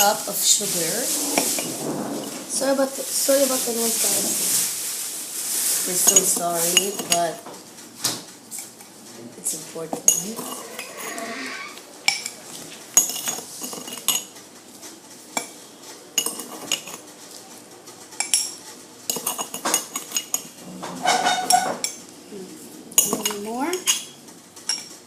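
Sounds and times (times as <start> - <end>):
metal spoons clinking on dishes: 10.0 - 10.9, 16.2 - 17.0, 18.2 - 22.0, 23.0 - 24.9.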